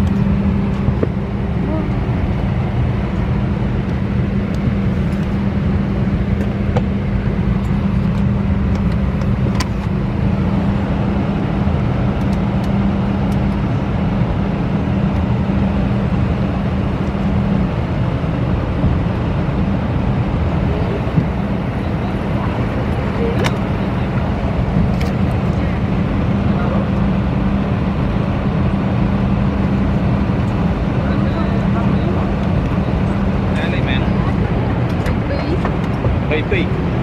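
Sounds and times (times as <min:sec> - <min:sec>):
vehicle drone: 0:00.0 - 0:37.0
steady hum: 0:08.1 - 0:37.0.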